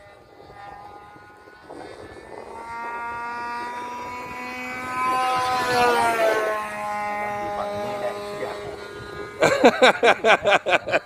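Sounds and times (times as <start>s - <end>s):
model airplane engine buzzing: 0.0s - 11.0s.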